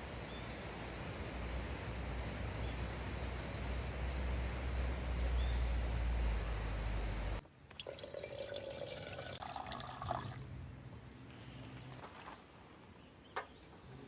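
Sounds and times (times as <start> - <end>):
water poured into container: 7.7 - 10.5.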